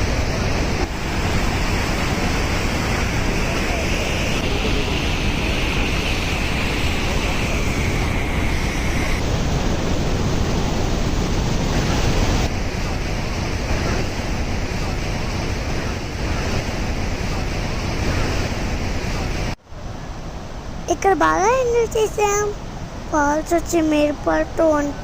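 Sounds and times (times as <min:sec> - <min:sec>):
waterfall rushing: 0:00.0 - 0:19.6
wind buffeting microphone: 0:00.0 - 0:25.0.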